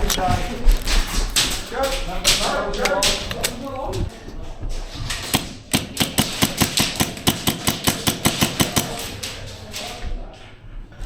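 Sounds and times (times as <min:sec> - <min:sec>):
airsoft gunfire: 0:05.2 - 0:09.8.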